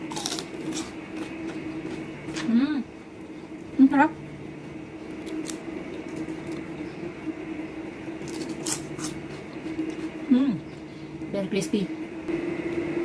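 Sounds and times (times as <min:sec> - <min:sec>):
fried chicken crunching: 0:00.0 - 0:02.0, 0:08.2 - 0:10.1
steady low hum: 0:00.0 - 0:13.0.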